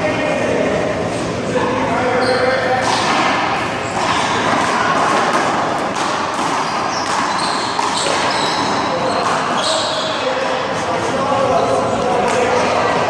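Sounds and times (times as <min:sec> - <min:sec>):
steady background noise: 0:00.0 - 0:13.0
handball smacking wall and court: 0:02.8 - 0:10.0.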